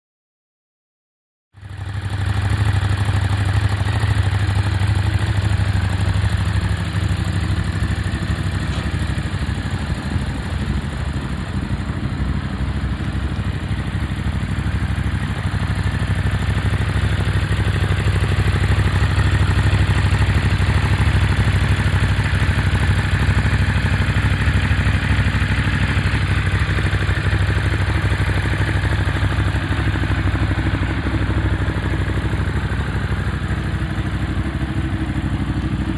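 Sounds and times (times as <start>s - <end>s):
motorcycle engine idling: 1.6s - 35.9s.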